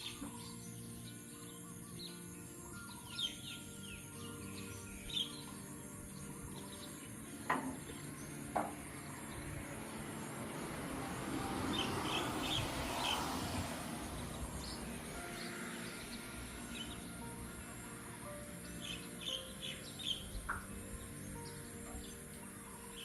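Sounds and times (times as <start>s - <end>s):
small birds chirping: 0.0s - 10.3s, 11.6s - 23.0s
sharp knocks: 7.4s - 8.9s.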